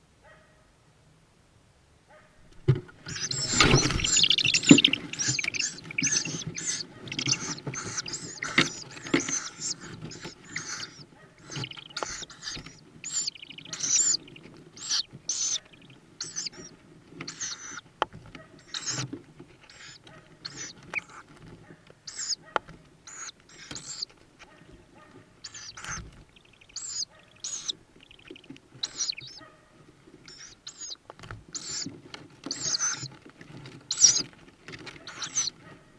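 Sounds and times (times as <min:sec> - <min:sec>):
rustling: 0:02.4 - 0:35.9
owl chicks hissing calls: 0:02.9 - 0:17.9, 0:18.6 - 0:21.4, 0:22.0 - 0:24.1, 0:25.4 - 0:29.4, 0:30.2 - 0:33.2, 0:33.8 - 0:34.3, 0:34.9 - 0:35.7.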